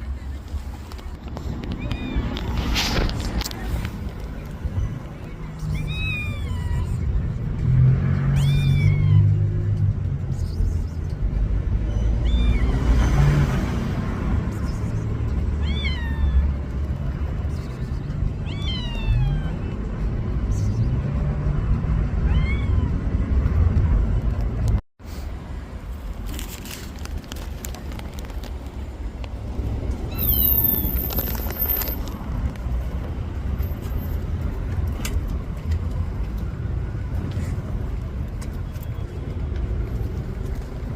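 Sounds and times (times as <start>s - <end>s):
cat meowing: 5.7s - 7.0s, 8.3s - 9.4s, 15.6s - 16.5s, 18.4s - 19.6s, 22.2s - 22.9s.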